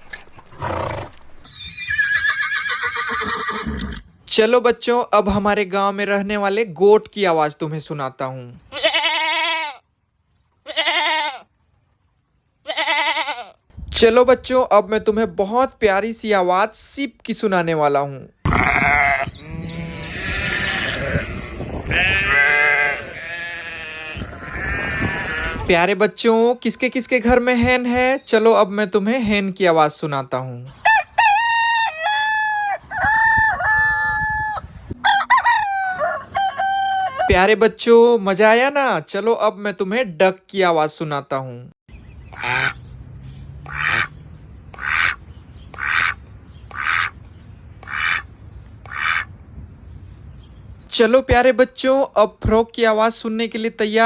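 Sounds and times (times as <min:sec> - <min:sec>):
sheep bleating: 0:08.7 - 0:09.8, 0:10.6 - 0:11.5, 0:12.7 - 0:13.6, 0:18.5 - 0:25.7
duck quacking: 0:42.3 - 0:42.8, 0:43.6 - 0:44.2, 0:44.8 - 0:47.2, 0:47.8 - 0:49.3.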